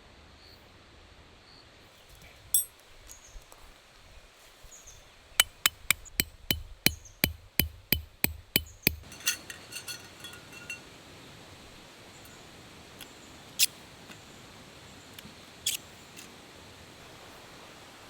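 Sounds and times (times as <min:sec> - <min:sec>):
light metallic clinks: 0:02.6 - 0:02.8, 0:05.4 - 0:10.9
tent peg being hammered: 0:05.4 - 0:09.2.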